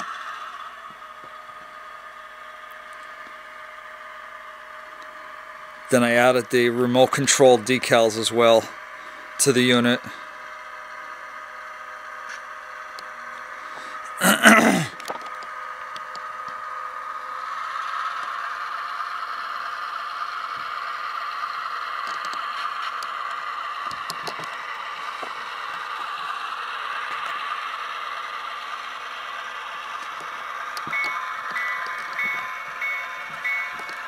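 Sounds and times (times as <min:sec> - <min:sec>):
diesel engine sound through small speaker: 0:00.0 - 0:34.0
pitched tone: 0:30.9 - 0:34.0.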